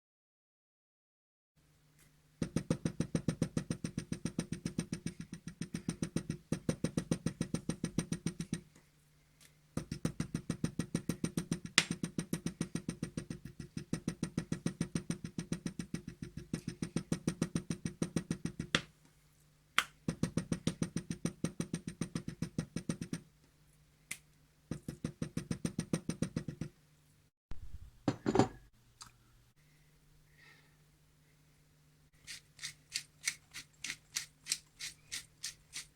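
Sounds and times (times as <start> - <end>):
rapid even knocking: 2.4 - 8.6.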